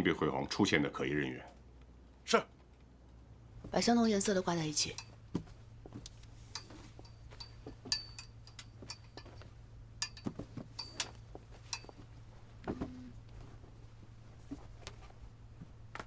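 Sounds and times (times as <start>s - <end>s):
clothes hangers clicking on rail: 6.5s - 9.3s, 10.0s - 12.0s.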